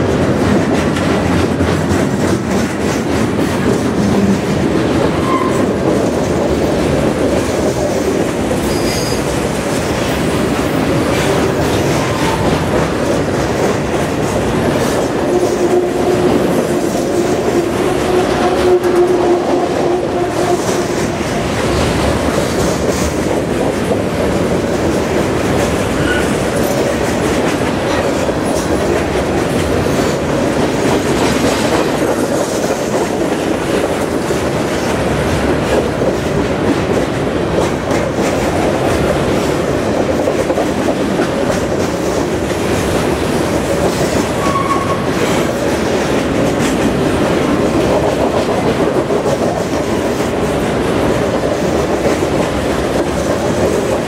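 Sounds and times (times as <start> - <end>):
freight train rolling past: 0.0 - 54.0
wheel squeal: 5.2 - 5.7, 44.4 - 45.1.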